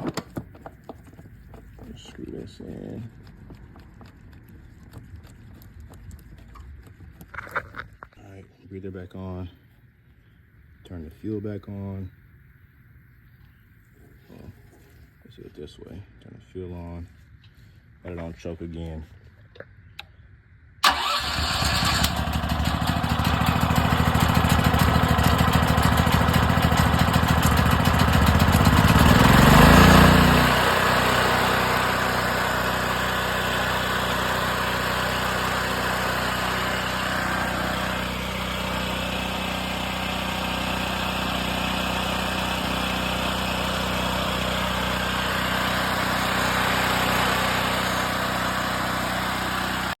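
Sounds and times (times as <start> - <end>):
small generator engine running: 20.8 - 50.0.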